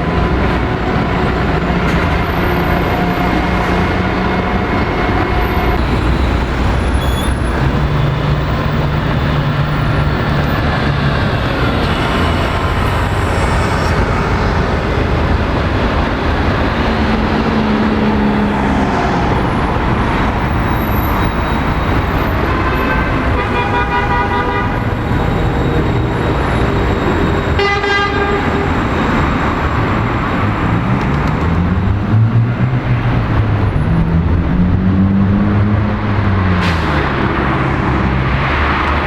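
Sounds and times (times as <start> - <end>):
city road traffic: 0.0 - 39.0
vehicle horn: 21.5 - 29.2.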